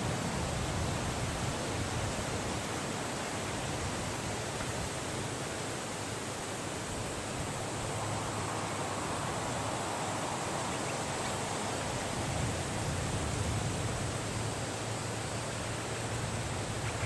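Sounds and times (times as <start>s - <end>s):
wind blowing: 6.6s - 17.0s.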